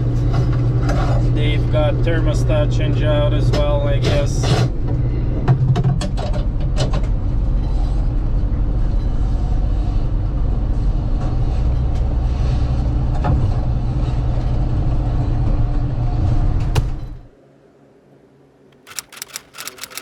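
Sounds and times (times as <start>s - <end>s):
short clicks and knocks: 18.8s - 20.0s.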